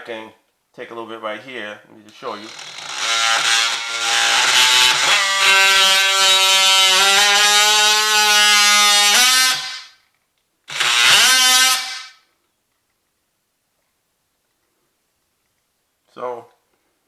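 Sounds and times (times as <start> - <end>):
power tool cutting wood: 2.2 - 10.0, 10.7 - 12.2.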